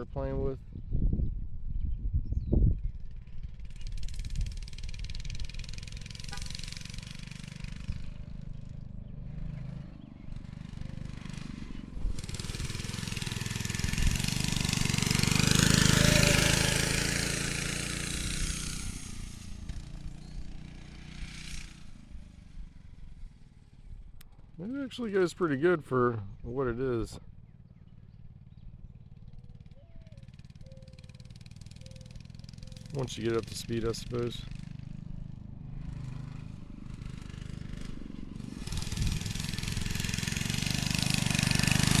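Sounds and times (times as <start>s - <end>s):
small motorbike engine passing: 0.0s - 42.0s.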